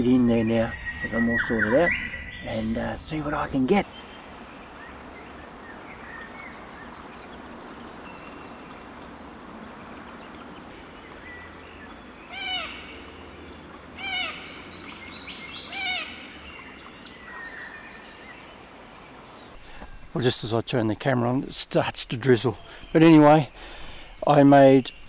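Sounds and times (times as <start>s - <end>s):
faint scattered birdsong: 0.0s - 25.0s
bird giving loud call notes: 12.3s - 13.1s, 14.0s - 14.7s, 15.6s - 16.4s.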